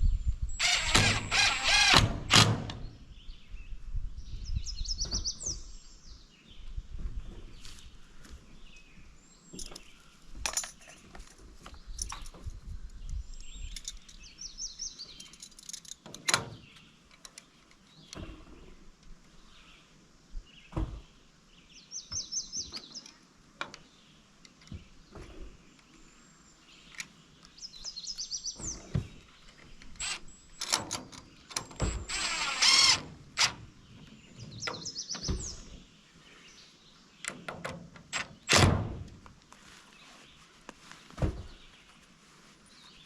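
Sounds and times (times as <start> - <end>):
knocks and thuds of wood and wire: 20.7 - 21.1, 41.2 - 41.6
bird chirps: 21.6 - 23.2, 24.7 - 31.6, 33.8 - 37.4.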